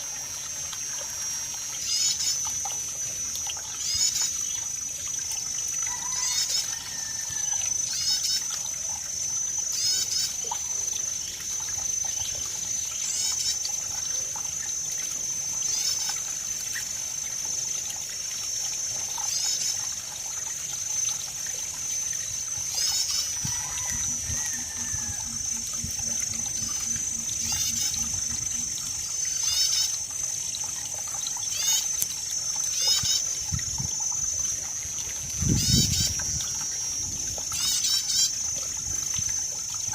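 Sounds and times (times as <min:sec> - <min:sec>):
water trickling: 0:00.0 - 0:39.9
low rattling call: 0:09.6 - 0:14.0, 0:22.2 - 0:34.6, 0:35.2 - 0:39.0
high-pitched drone: 0:22.2 - 0:32.2.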